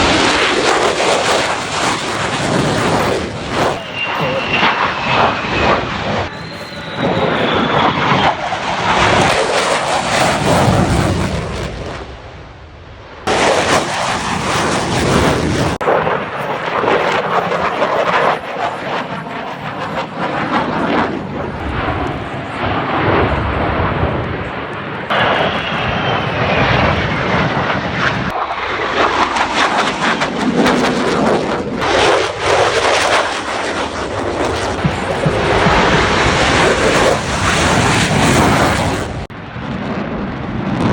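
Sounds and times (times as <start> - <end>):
jet engines roaring: 0.0 - 40.9
faint falling whine: 3.3 - 9.2.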